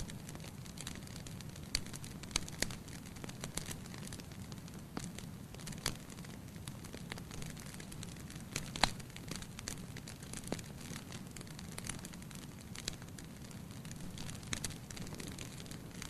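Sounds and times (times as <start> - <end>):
fire crackling and popping: 0.0 - 16.0
fire hissing: 0.0 - 16.0.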